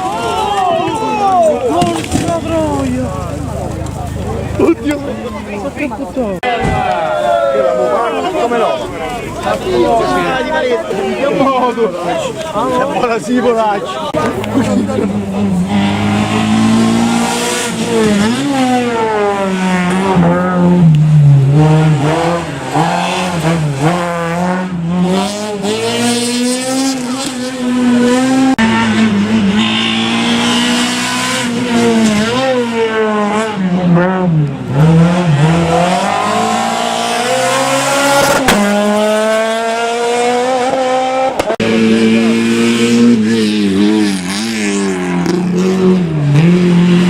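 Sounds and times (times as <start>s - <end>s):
rally car engine revving hard: 14.1s - 47.0s.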